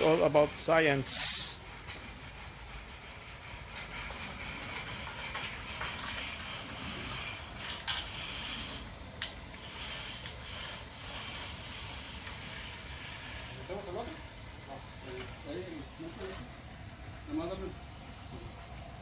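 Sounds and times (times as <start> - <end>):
steel tool scraping concrete: 3.7 - 8.9, 9.5 - 14.2.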